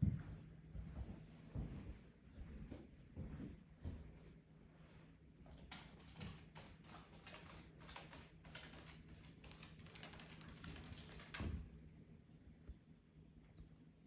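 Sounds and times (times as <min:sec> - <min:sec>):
light clicks and taps: 0:05.5 - 0:11.6.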